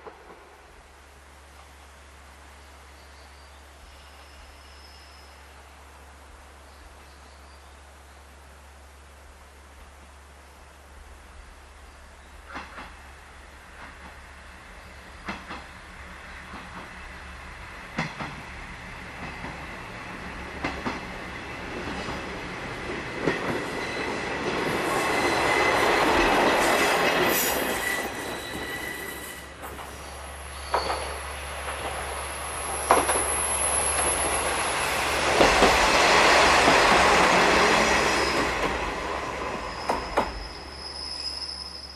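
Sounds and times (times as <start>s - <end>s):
train running noise: 12.4s - 41.9s.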